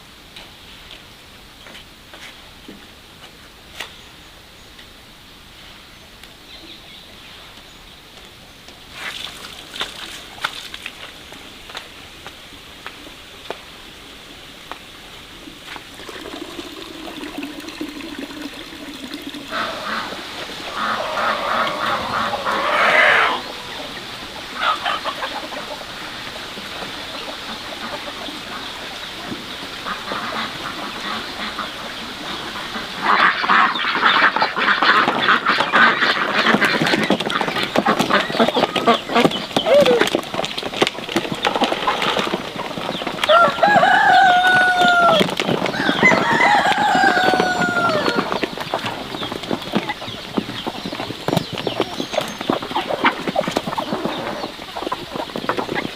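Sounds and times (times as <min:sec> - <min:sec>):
ducks quacking: 0:16.0 - 0:40.2, 0:41.4 - 0:55.9.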